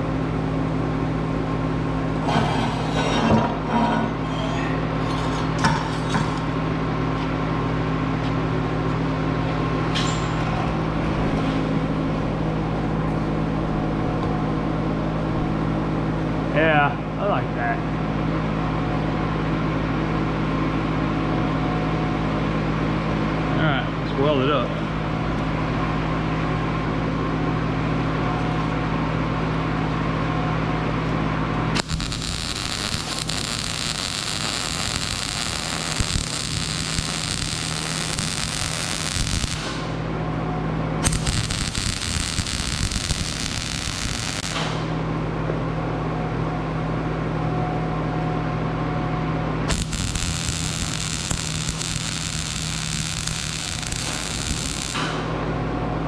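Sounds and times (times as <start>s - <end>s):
welding machine hum: 0.0s - 16.0s, 28.2s - 45.4s, 49.1s - 56.0s
arc welding crackling: 31.7s - 40.1s, 41.0s - 45.0s, 49.7s - 55.5s.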